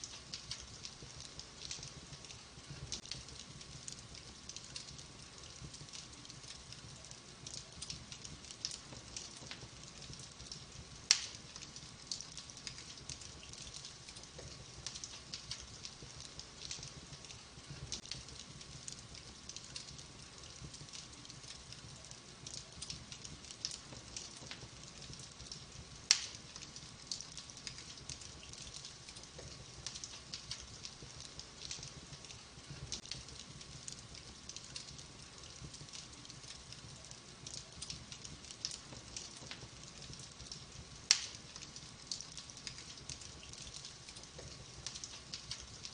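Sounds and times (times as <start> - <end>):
burning logs crackling: 0.0 - 45.9
sharp loud pops of fire: 11.1 - 11.5, 26.1 - 26.5, 41.0 - 41.6.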